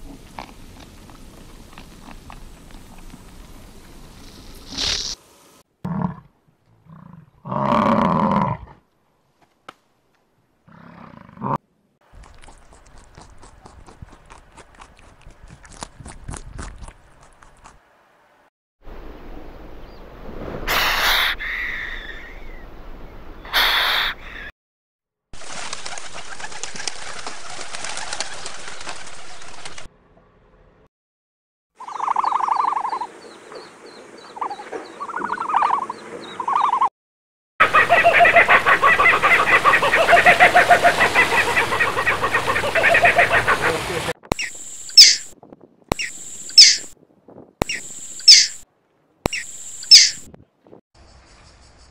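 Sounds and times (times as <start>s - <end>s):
kingfisher calling: 37.6s - 45.3s, 45.9s - 46.9s, 47.6s - 48.6s, 49.3s - 50.3s.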